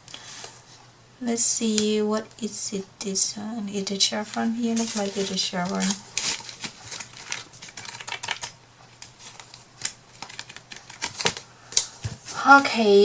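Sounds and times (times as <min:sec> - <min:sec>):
paper sheets rustling and tapping: 0:04.2 - 0:11.4.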